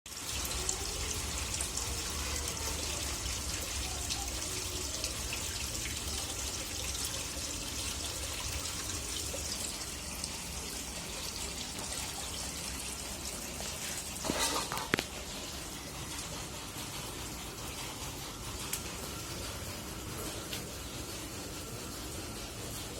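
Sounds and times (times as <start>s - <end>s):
rain falling: 0.1s - 22.9s
water pouring and dripping: 0.1s - 22.9s.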